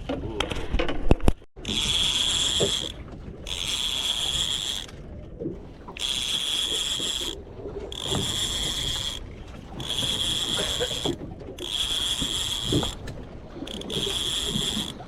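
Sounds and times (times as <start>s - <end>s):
high-pitched pulsing buzz: 1.6s - 4.9s, 5.9s - 9.2s, 9.8s - 13.0s, 13.6s - 15.0s.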